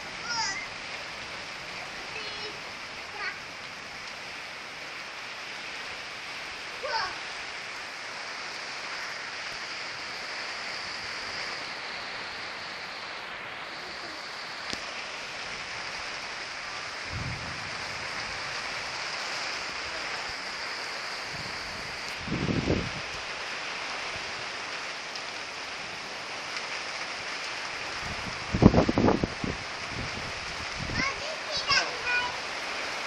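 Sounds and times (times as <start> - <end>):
steady rain hiss: 0.0 - 33.0
low thunder rumble: 16.4 - 23.2.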